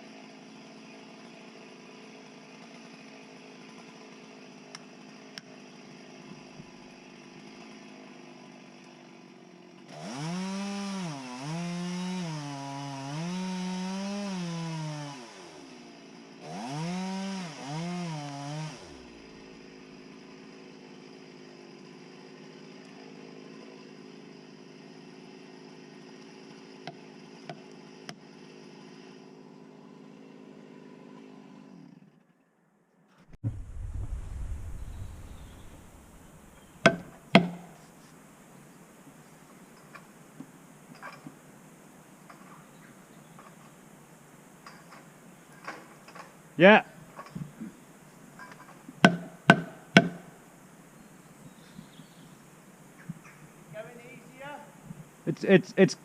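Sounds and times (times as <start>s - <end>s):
two-stroke chainsaw revving: 0.0s - 32.2s.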